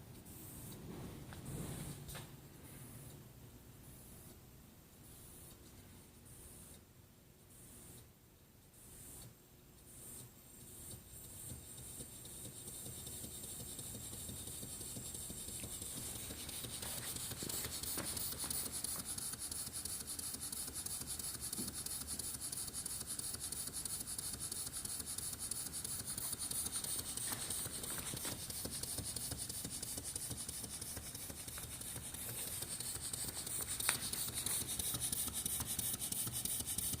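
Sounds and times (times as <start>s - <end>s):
steam engine chuffing with hiss: 11.4s - 37.0s.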